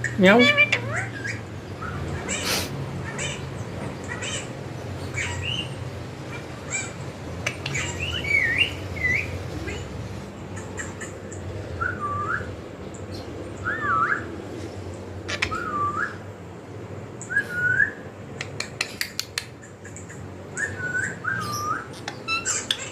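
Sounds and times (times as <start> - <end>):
parrot whistling: 13.6 - 14.3, 15.3 - 16.2, 20.6 - 22.9.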